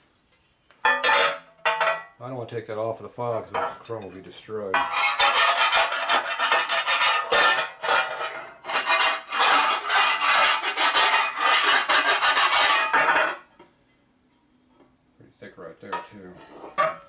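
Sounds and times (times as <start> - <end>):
hand file rasping on metal: 4.8 - 13.0.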